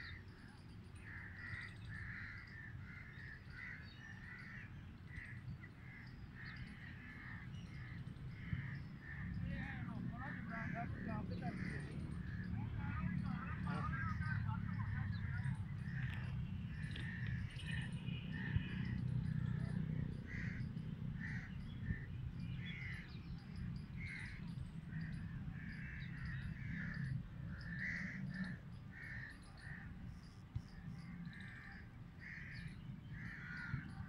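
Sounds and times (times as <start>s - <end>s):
birds calling: 0.0s - 34.0s
steady low rumble: 8.3s - 22.1s.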